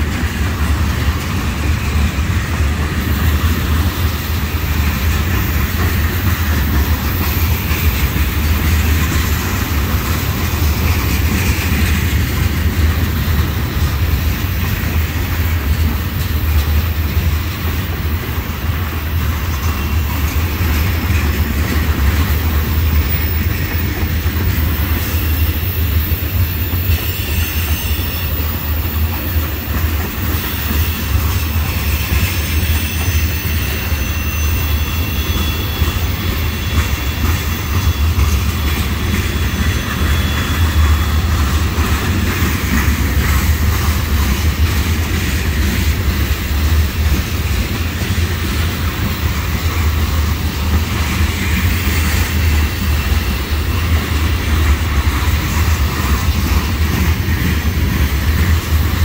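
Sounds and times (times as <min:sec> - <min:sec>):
freight train wheels rumbling: 0:00.0 - 0:59.0
high-pitched wheel squeals: 0:19.2 - 0:44.2.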